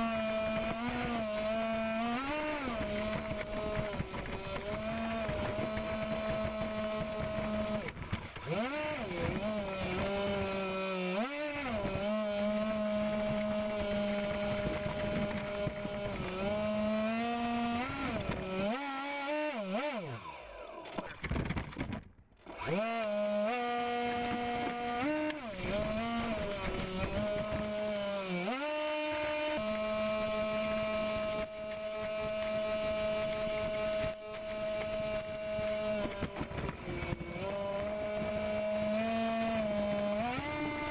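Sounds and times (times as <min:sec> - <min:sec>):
model airboat motor and propeller: 0:00.0 - 0:40.9.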